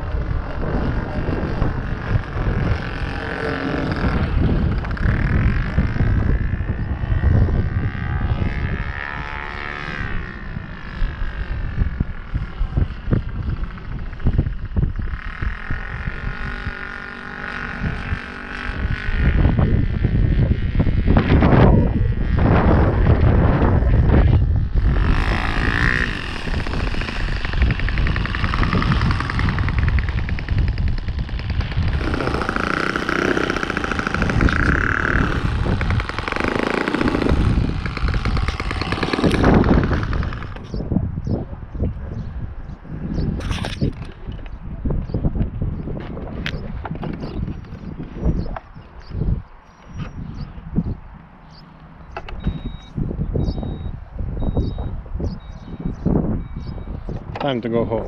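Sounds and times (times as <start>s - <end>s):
model plane engine: 0.0s - 40.8s
wind rumble on microphone: 0.0s - 58.0s.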